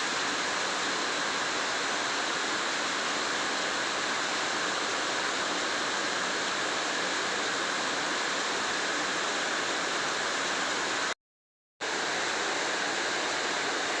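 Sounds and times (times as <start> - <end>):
rain falling steadily: 0.0 - 11.1, 11.9 - 14.0.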